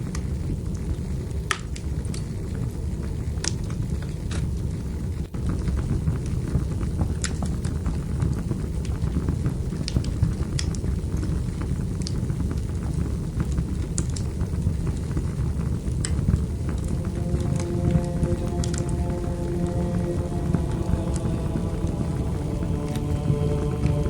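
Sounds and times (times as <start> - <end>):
wood fire crackling and popping: 5.3 - 16.9.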